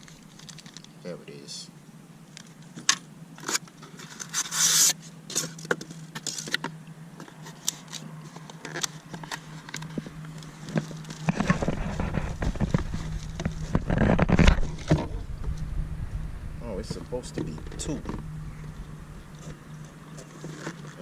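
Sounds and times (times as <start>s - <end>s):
plastic and cardboard crinkling: 0.0s - 0.9s, 2.4s - 15.1s, 19.4s - 21.0s
heavy packaging rustling: 7.3s - 15.1s
low rumble: 11.2s - 20.1s.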